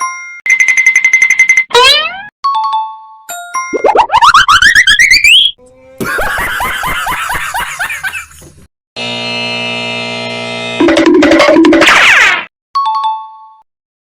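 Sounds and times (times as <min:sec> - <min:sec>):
rising cartoon boing: 0:01.8 - 0:02.3.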